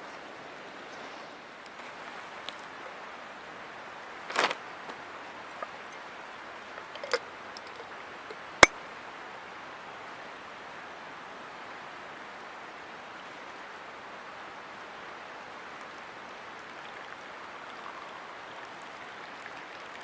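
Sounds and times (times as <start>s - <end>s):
river water flowing: 0.1s - 20.0s.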